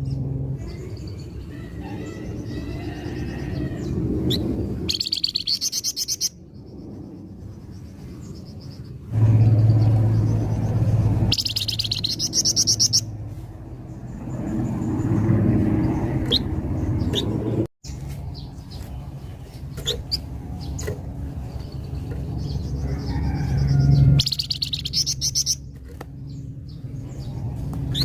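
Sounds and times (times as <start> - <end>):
steady low hum: 0.0 - 28.0
songbird trilling and chirping: 0.6 - 6.6, 11.3 - 13.1, 17.9 - 28.0.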